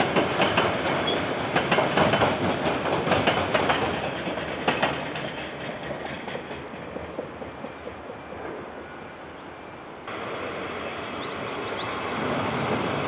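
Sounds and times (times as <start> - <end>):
wheels clacking over rail joints: 0.0 - 8.6
freight train rumble: 0.0 - 13.0.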